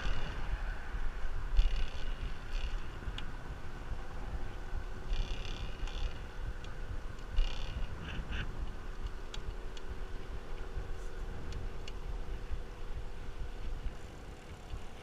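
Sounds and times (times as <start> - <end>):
wind and road noise: 0.0 - 15.0
light ticks: 1.6 - 3.3, 5.1 - 9.9, 11.4 - 12.1.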